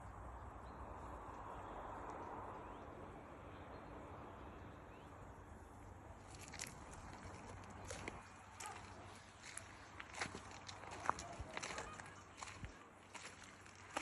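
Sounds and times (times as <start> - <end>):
crisp footsteps crunching: 6.2 - 14.0.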